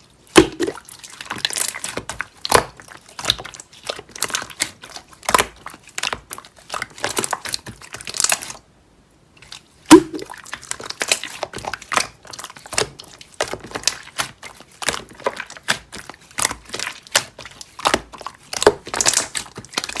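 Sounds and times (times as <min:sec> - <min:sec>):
slime squished by hand: 0:00.2 - 0:08.6, 0:09.4 - 0:20.0
loud pop: 0:09.9 - 0:10.2.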